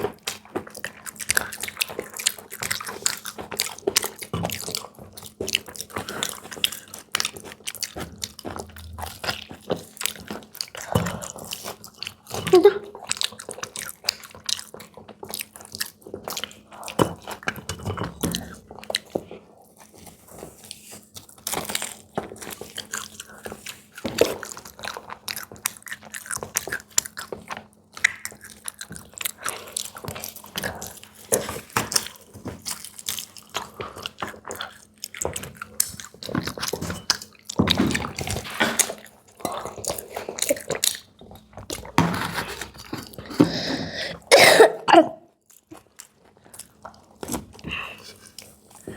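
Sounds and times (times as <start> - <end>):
crunching and chewing fried snacks: 0.0 - 44.3, 45.3 - 48.9.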